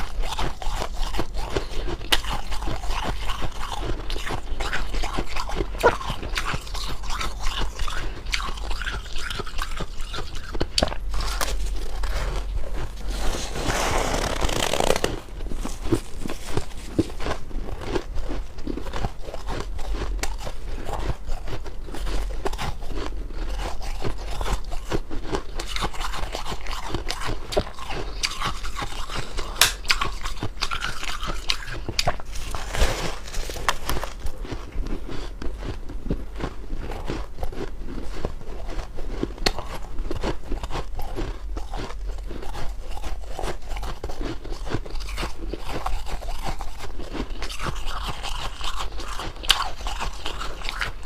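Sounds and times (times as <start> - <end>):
ice being chewed: 0.0 - 51.0.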